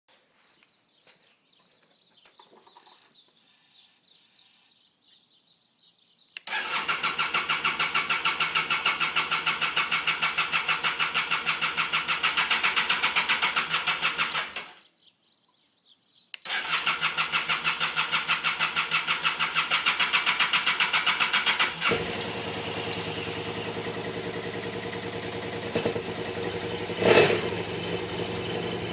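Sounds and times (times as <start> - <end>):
motorcycle engine cranking: 6.4 - 14.8, 16.4 - 28.9
motorcycle engine idling: 17.1 - 28.9.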